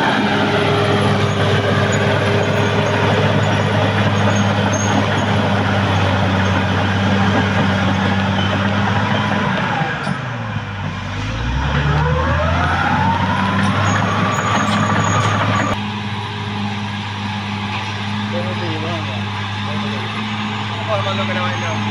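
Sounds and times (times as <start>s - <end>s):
bulldozer diesel engine under load: 0.0s - 21.9s.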